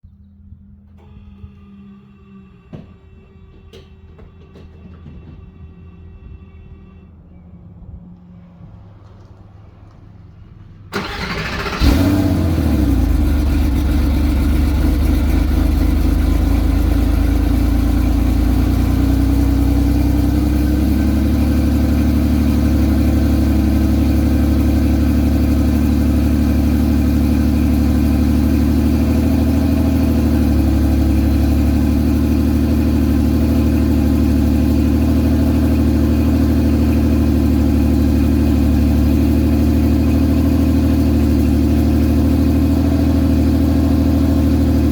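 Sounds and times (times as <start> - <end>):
car engine idling: 9.1 - 44.9.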